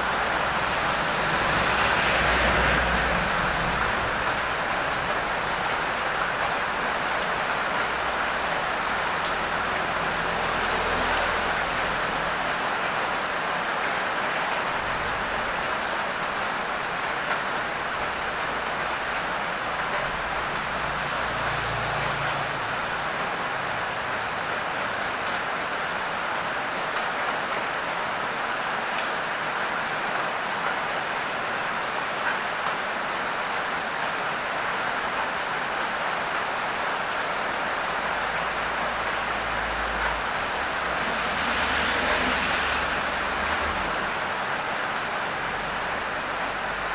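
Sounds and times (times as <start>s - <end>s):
heavy rain hissing: 0.0s - 13.8s, 27.6s - 46.9s.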